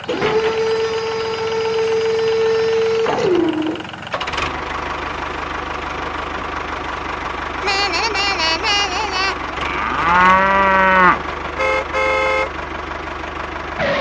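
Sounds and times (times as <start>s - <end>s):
tractor engine idling: 0.0s - 14.0s
wavering voice-like sound: 7.6s - 9.4s.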